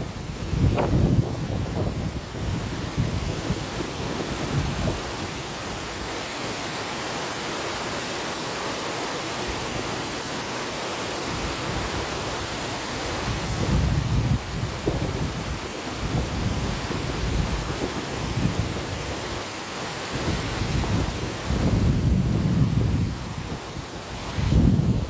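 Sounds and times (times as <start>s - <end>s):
low rumbling wind gusts: 0.0s - 6.2s, 11.3s - 25.0s
river water rushing: 0.0s - 25.0s.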